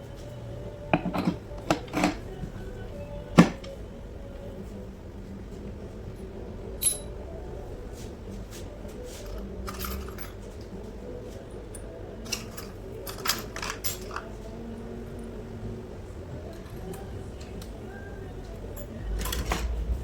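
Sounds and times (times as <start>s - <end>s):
metal parts clinking: 6.8s - 7.1s, 9.3s - 10.4s, 12.2s - 14.3s.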